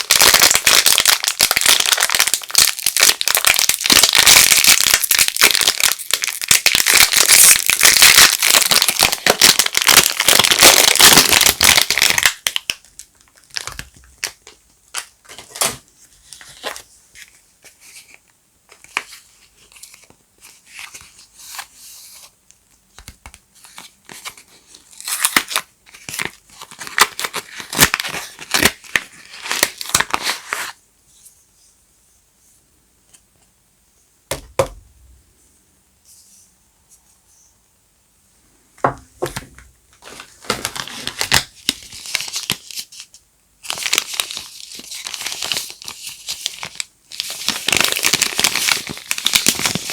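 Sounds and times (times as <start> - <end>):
wrapping crinkling and tearing: 0.0 - 17.3, 23.6 - 30.8, 40.0 - 49.9.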